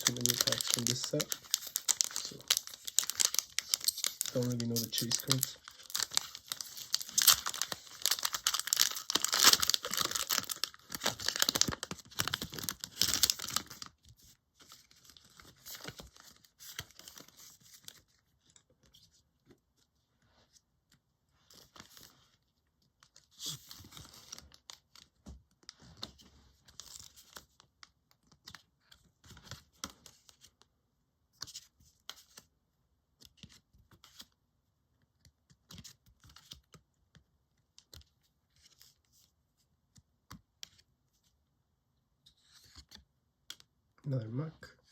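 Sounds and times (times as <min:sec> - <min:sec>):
foil wrapper tearing and crinkling: 0:00.0 - 0:13.9
trading cards rustling and clicking: 0:00.0 - 0:13.9.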